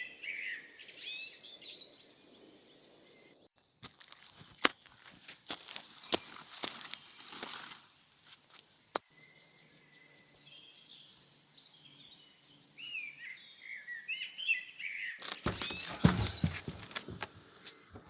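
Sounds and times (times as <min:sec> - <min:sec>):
small birds chirping: 0:00.0 - 0:18.0
loud knocking and clatter: 0:15.5 - 0:18.0.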